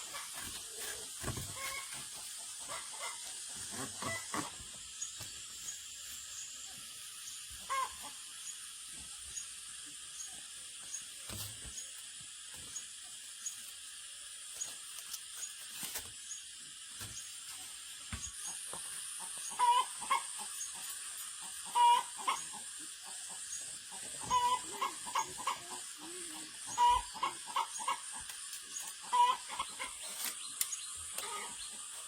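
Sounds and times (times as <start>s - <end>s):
chickens clucking: 0.0s - 5.8s, 6.7s - 9.0s, 18.1s - 32.0s
steady high hiss: 0.0s - 32.0s.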